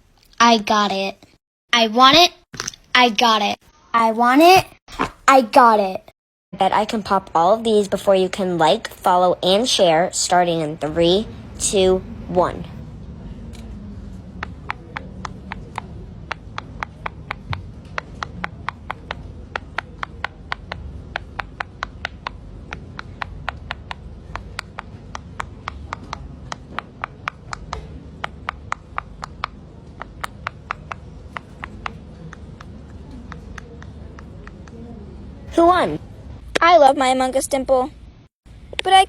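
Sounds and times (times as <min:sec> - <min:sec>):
fidget toy bubbles popping: 0:14.4 - 0:34.7.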